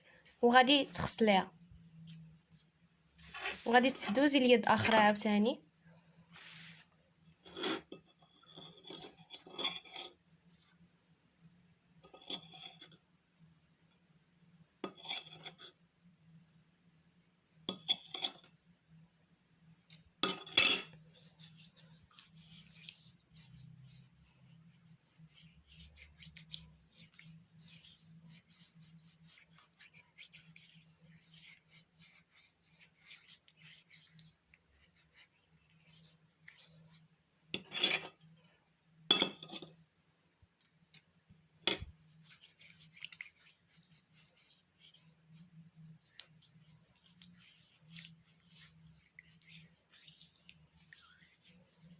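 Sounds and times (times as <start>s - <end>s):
gritty rubbing on skin: 1.0s - 5.2s, 6.3s - 6.9s, 21.0s - 37.1s, 41.9s - 51.9s
spoon clinking in a bowl: 20.2s - 20.9s, 39.1s - 39.7s.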